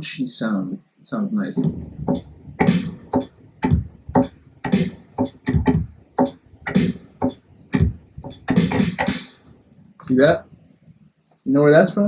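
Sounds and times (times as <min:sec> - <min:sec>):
distorted drum beat: 0:01.5 - 0:10.4.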